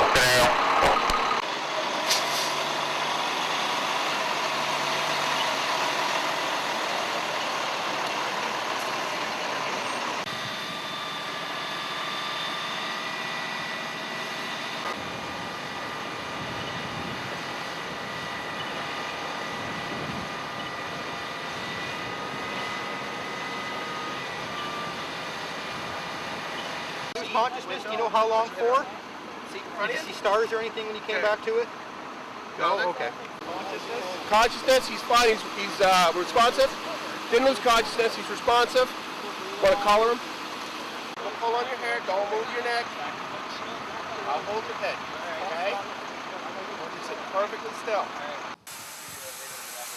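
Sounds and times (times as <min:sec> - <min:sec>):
steady high whines: 0:00.0 - 0:47.8
heavy truck engines running: 0:00.0 - 0:48.7.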